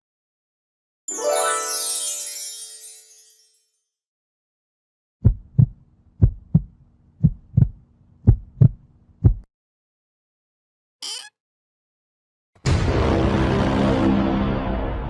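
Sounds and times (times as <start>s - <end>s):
heartbeat thumps: 5.2s - 9.5s.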